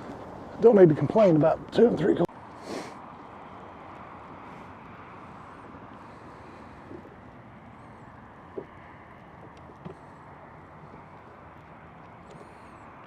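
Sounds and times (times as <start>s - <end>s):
steady rushing noise on boat: 0.0s - 13.0s.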